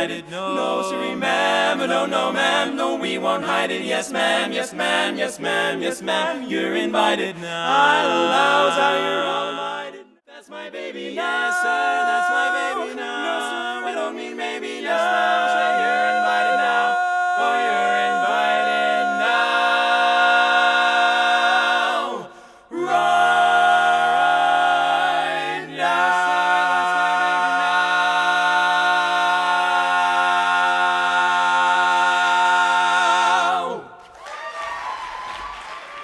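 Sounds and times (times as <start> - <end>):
a cappella group singing: 0.0 - 34.1.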